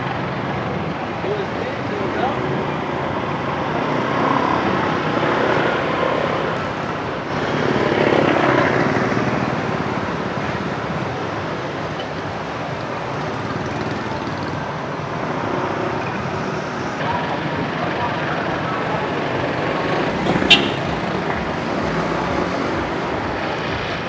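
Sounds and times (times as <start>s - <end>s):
street traffic: 0.0s - 24.0s
vehicle passing: 13.5s - 24.0s.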